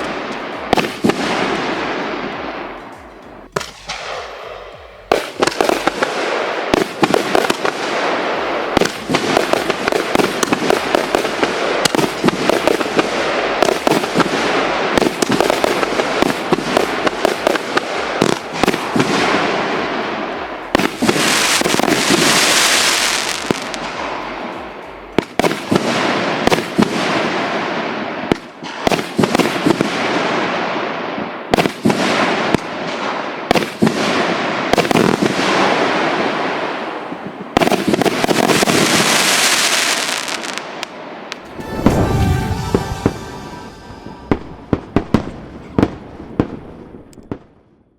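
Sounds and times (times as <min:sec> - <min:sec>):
fireworks aerial bursts: 0:00.0 - 0:28.0, 0:41.3 - 0:46.5.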